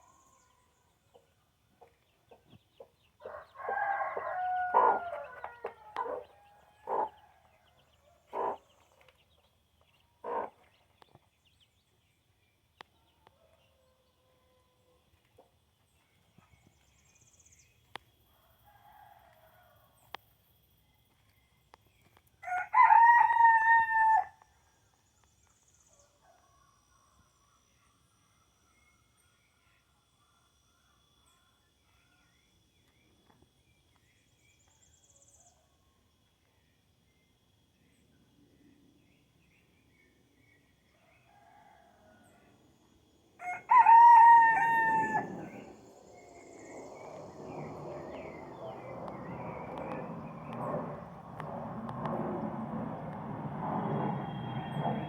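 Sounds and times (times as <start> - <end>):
rooster crowing: 3.2 - 7.3, 22.4 - 24.4, 43.4 - 46.3
small birds chirping: 4.3 - 12.0.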